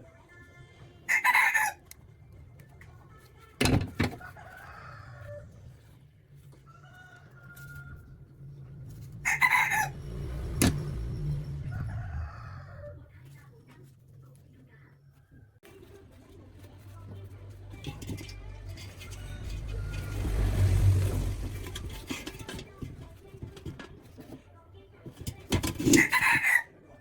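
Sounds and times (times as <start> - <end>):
low steady background hum: 0.0 - 26.2
chicken calls: 9.2 - 10.0.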